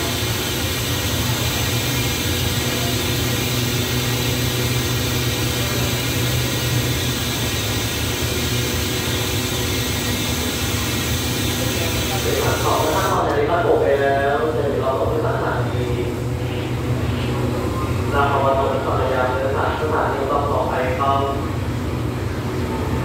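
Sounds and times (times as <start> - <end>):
hiss: 0.0 - 13.2
idling train machinery hum: 0.0 - 23.0.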